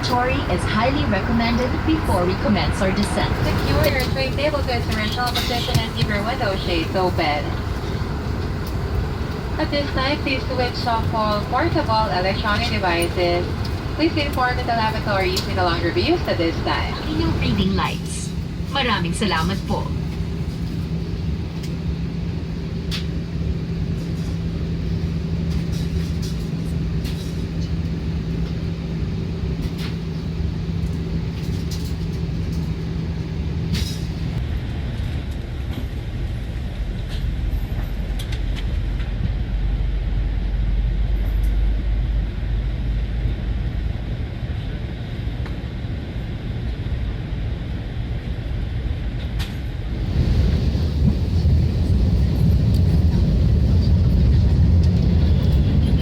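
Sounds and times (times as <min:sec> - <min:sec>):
deeper rumble: 0:00.0 - 0:34.4, 0:49.9 - 0:56.0
aircraft cabin drone: 0:00.0 - 0:56.0.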